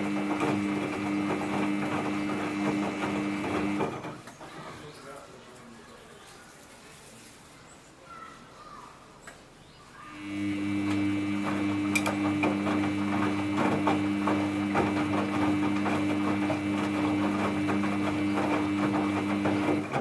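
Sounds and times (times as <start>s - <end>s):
washing machine motor hum: 0.0s - 4.3s, 10.1s - 20.0s
wet clothes clattering in drum: 0.0s - 5.0s, 11.4s - 20.0s.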